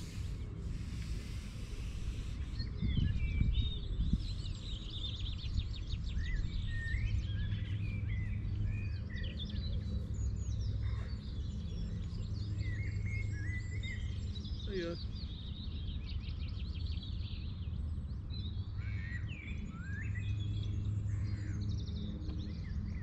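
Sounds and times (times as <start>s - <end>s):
steady low rumble: 0.0s - 15.4s
songbirds singing: 0.0s - 23.0s.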